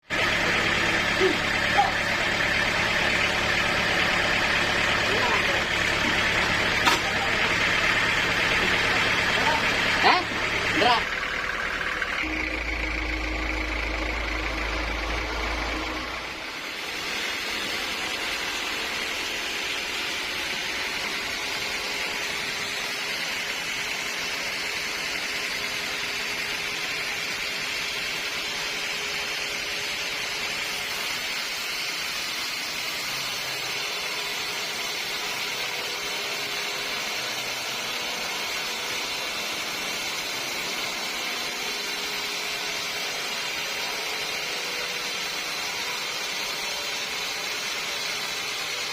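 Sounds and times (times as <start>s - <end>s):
high-pitched sawmill machinery: 0.0s - 48.9s
low hum: 5.5s - 16.9s.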